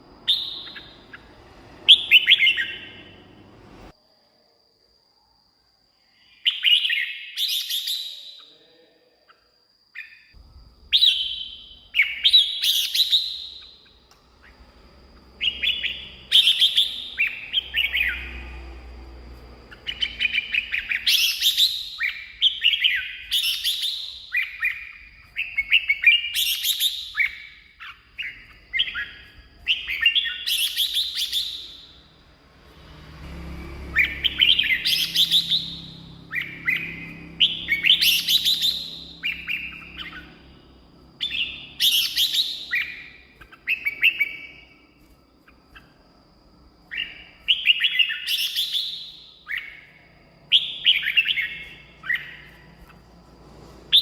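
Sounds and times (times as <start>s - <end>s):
bird singing whistled phrases: 0.2s - 3.2s, 6.3s - 8.6s, 10.9s - 18.6s, 19.7s - 32.1s, 33.8s - 40.5s, 41.2s - 44.8s, 46.9s - 52.7s.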